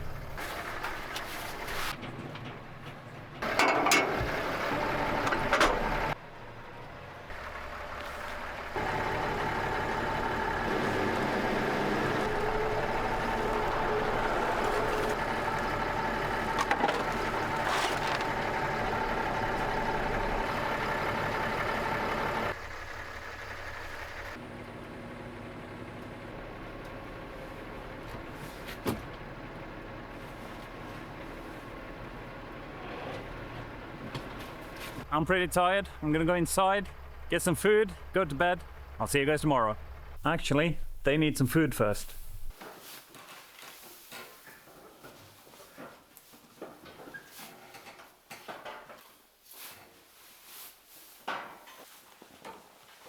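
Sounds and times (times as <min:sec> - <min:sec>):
tractor engine running: 0:00.0 - 0:42.6
high engine whine: 0:07.3 - 0:28.2, 0:29.0 - 0:42.6.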